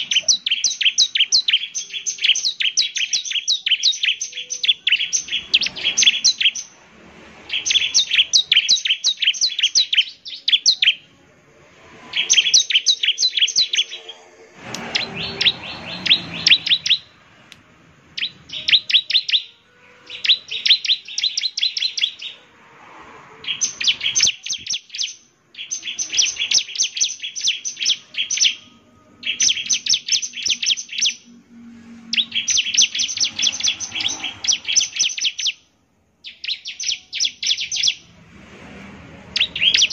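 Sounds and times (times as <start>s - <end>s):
bird singing high chirps: 0.0s - 11.2s, 12.1s - 17.2s, 18.1s - 22.5s, 23.3s - 38.2s, 39.3s - 39.9s
brief rushing noise: 37.9s - 39.9s.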